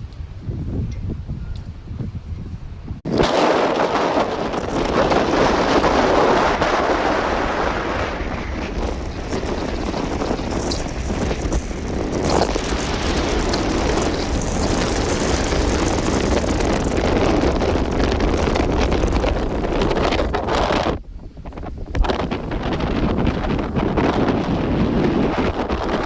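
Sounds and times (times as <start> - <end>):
strong wind buffeting microphone: 0.0 - 26.0.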